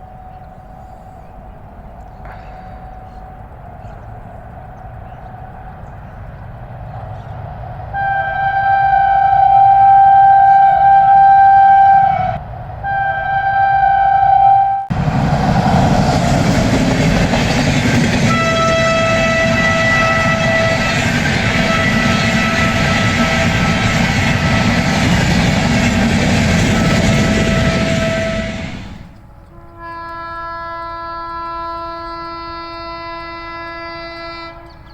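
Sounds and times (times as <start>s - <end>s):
long steady train horn: 0.0s - 34.9s
train rumbling past: 0.0s - 34.9s
train horn blasts: 7.9s - 34.8s.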